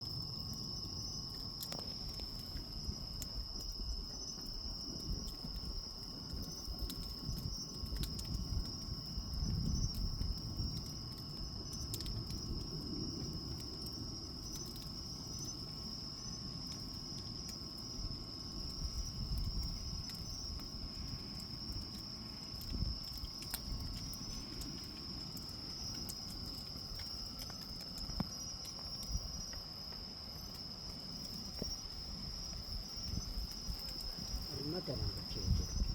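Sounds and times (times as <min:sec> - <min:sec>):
campfire crackling: 0:00.0 - 0:35.9
insects singing: 0:13.2 - 0:35.9.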